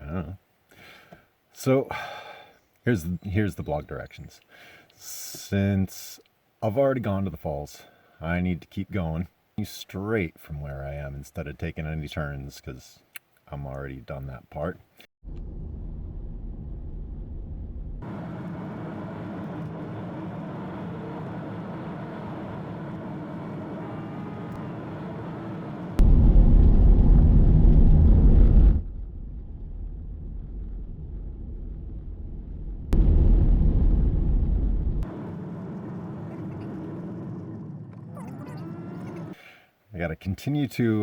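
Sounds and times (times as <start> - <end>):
road and tyre rumble: 15.2 - 39.4.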